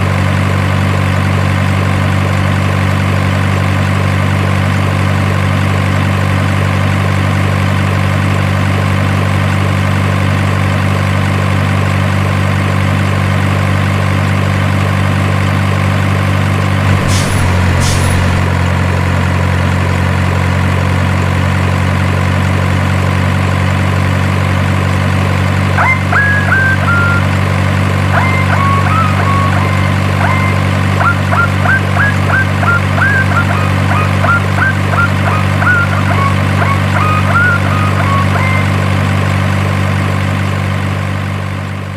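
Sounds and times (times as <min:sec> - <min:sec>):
diesel truck engine idling: 0:00.0 - 0:41.9
short high chirps: 0:16.9 - 0:18.5, 0:28.2 - 0:38.8.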